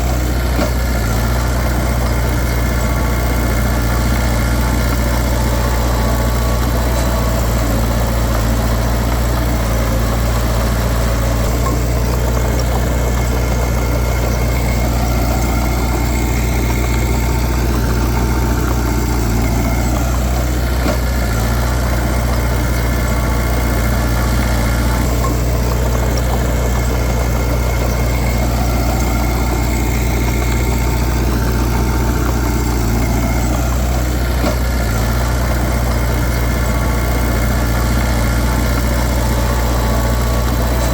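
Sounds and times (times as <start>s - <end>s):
bulldozer diesel engine running: 0.0s - 40.9s.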